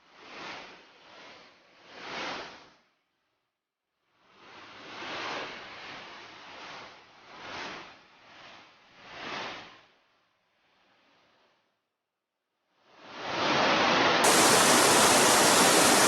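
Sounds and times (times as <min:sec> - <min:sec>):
torrent rushing between rocks: 0:14.2 - 0:16.0.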